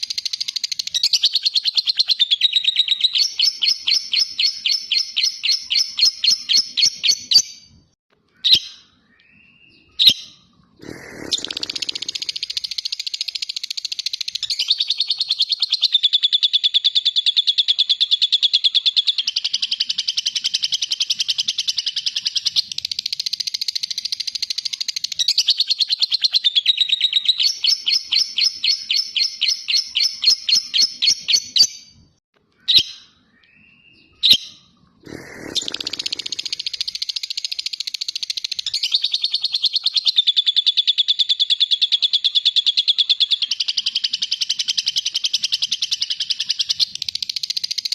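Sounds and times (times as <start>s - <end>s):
short bird calls: 8.4s - 12.9s, 32.6s - 37.6s
bird chattering trill: 10.8s - 31.7s, 35.0s - 47.9s.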